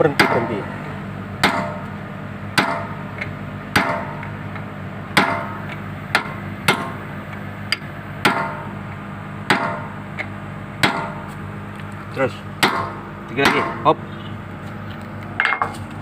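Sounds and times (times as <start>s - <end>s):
excavator engine humming: 0.0s - 16.0s
hammer striking steel pin: 1.4s - 1.8s, 2.6s - 3.0s, 3.7s - 4.3s, 5.2s - 7.0s, 7.7s - 8.7s, 9.5s - 9.9s, 10.8s - 11.3s, 12.6s - 13.8s.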